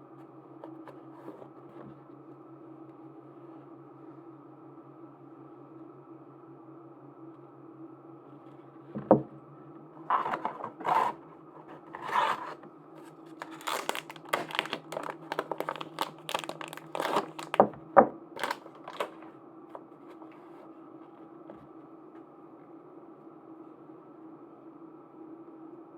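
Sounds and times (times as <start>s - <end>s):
plastic packaging crinkling and tearing: 10.1s - 17.7s, 18.4s - 19.3s.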